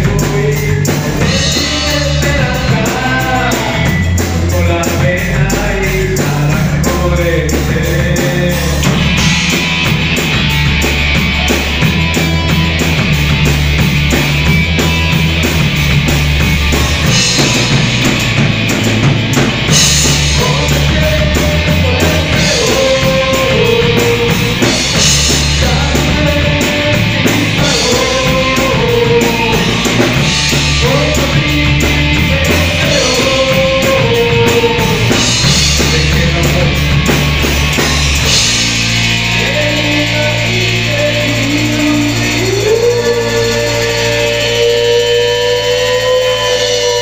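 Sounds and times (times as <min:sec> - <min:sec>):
bass guitar: 0:00.0 - 0:47.0
distorted electric guitars: 0:00.0 - 0:47.0
drum kit: 0:00.0 - 0:47.0.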